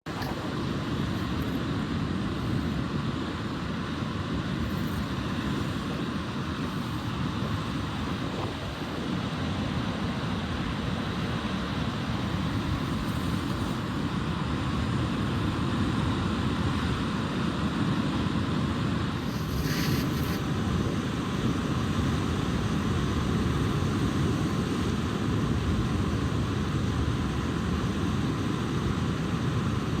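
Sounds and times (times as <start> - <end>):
wind buffeting microphone: 0.0 - 15.4.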